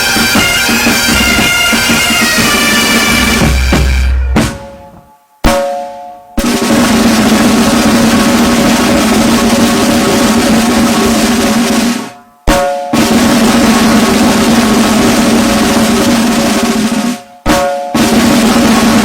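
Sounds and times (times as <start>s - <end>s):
snare drum roll: 0.0s - 19.0s
ringing snare strike: 3.4s - 6.7s, 11.9s - 13.3s, 17.4s - 19.0s.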